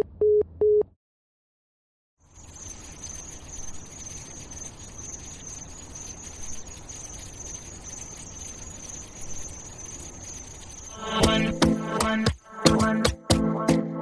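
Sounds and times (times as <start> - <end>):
high-pitched insect chirring: 2.2 - 13.0
music: 11.0 - 14.0.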